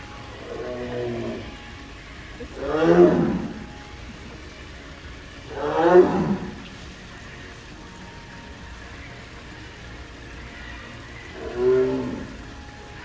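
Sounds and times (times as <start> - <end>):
large animal moaning call: 0.3 - 1.8, 2.4 - 3.9, 5.5 - 6.8, 11.2 - 12.7.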